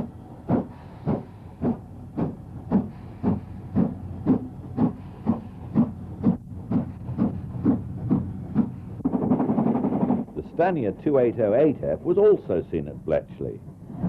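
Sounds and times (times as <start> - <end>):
steam locomotive chuffing: 0.0 - 14.0.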